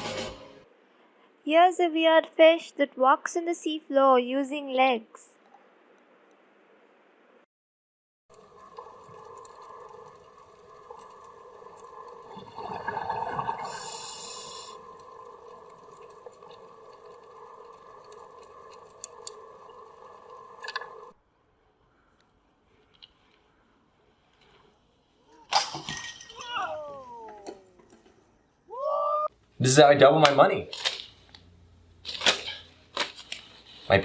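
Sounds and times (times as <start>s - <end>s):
mechanical hum: 29.3s - 33.8s.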